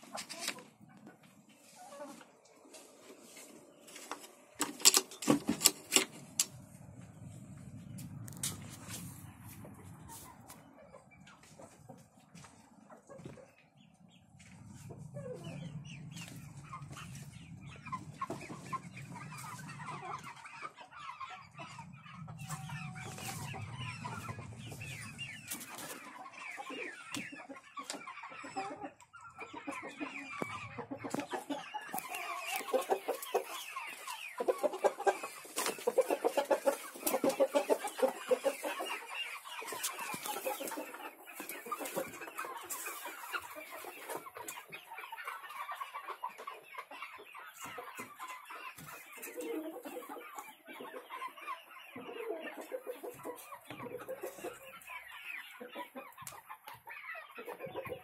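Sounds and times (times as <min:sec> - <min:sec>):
chickens clucking: 0:00.0 - 0:58.0
low hum: 0:06.1 - 0:10.5.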